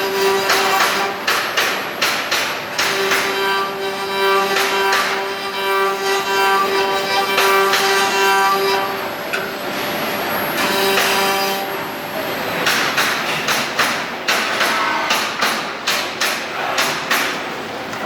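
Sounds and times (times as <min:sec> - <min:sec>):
lathe motor whine: 0:02.9 - 0:12.6.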